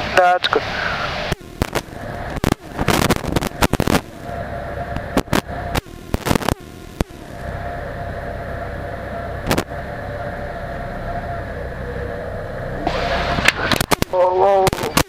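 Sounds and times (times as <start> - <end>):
aircraft cabin engine idle: 0.0 - 15.0
sharp cracks and knocks: 13.4 - 15.0.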